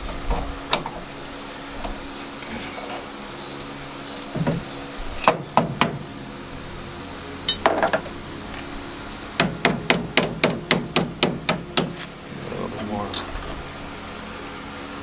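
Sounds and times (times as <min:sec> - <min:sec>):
low hum: 0:00.0 - 0:15.0
hammer on sheet metal: 0:09.4 - 0:12.1.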